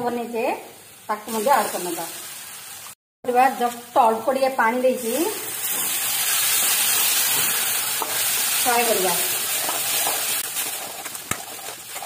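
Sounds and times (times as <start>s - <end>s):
paste sizzling in hot oil: 0.8s - 4.1s, 5.0s - 12.0s
spatula scraping: 9.2s - 12.0s.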